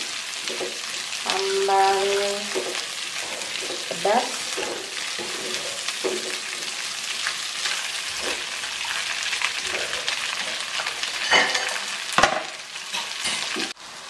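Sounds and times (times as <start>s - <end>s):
food sizzling in a wok: 0.0s - 14.0s
spatula scraping a wok: 2.5s - 12.1s.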